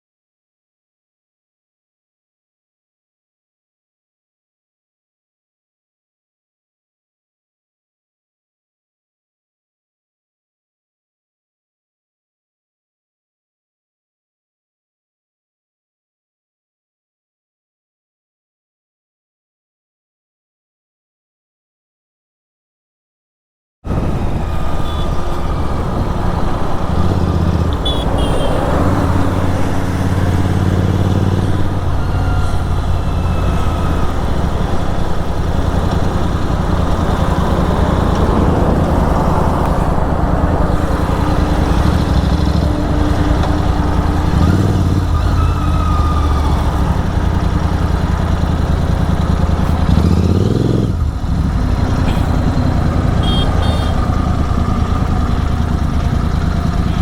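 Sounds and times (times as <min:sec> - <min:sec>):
wind rush: 0:23.9 - 0:30.5, 0:33.7 - 0:44.9
motorcycle engine running: 0:23.9 - 0:57.0.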